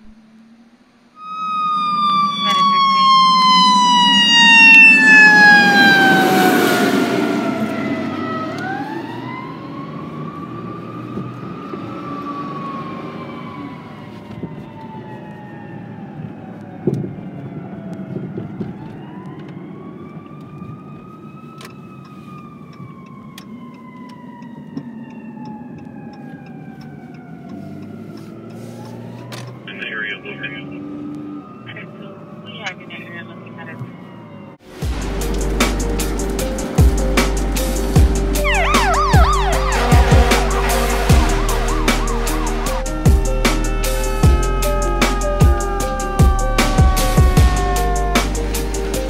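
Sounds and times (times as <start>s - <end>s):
fire engine siren wailing: 0.0s - 49.0s
truck engine rumble: 21.8s - 49.0s.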